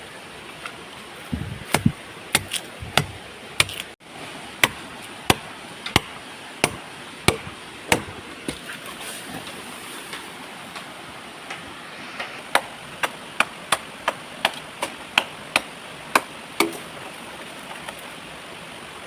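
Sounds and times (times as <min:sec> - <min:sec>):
blade chopping tree trunk: 0:01.3 - 0:04.0, 0:04.6 - 0:08.7, 0:12.5 - 0:16.9.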